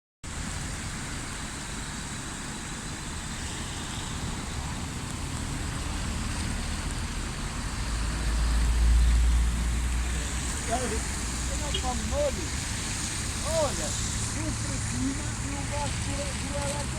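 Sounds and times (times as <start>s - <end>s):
flooded river rushing: 0.3s - 16.9s.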